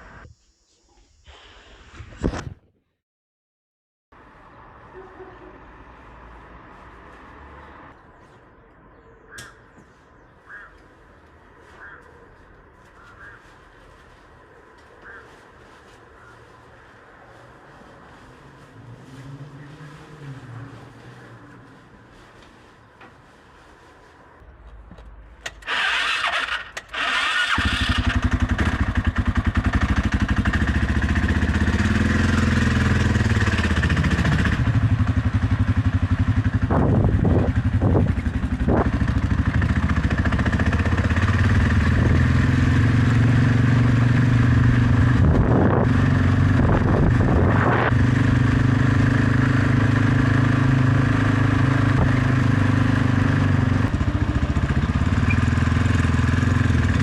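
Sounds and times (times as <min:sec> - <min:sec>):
motorcycle engine cranking: 0:25.4 - 0:30.8
motorcycle engine running: 0:27.5 - 0:57.0.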